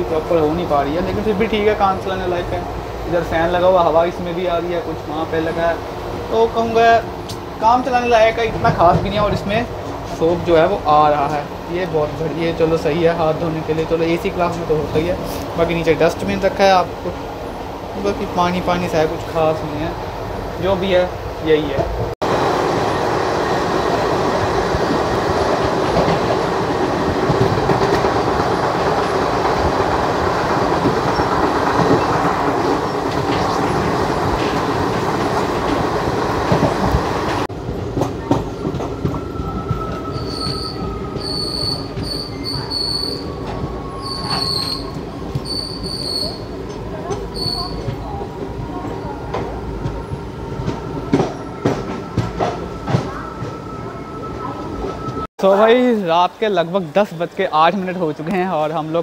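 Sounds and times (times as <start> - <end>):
train wheels rolling on rails: 0.0 - 59.0
high-pitched brake squeals: 39.4 - 46.6, 47.3 - 47.9.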